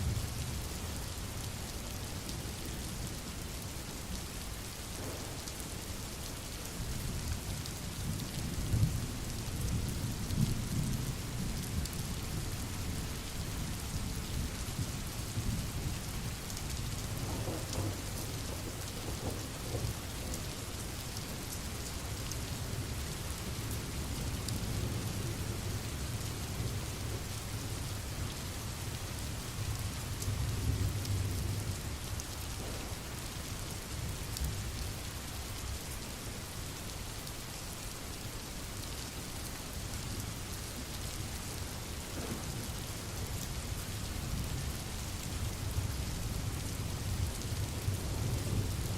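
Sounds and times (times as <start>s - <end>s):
steady rain falling: 0.0s - 48.9s
rolling thunder rumbles: 5.0s - 5.4s, 17.1s - 20.5s, 32.6s - 33.4s, 42.1s - 42.8s.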